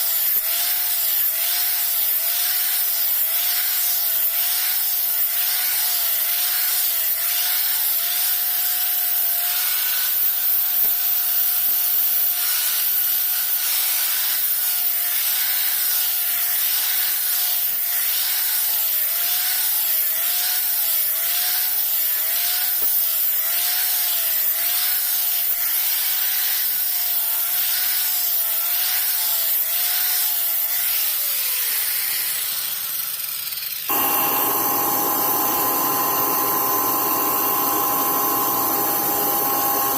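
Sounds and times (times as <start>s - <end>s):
electric grinder on steel: 0.0s - 39.9s
steady hum: 33.9s - 39.9s.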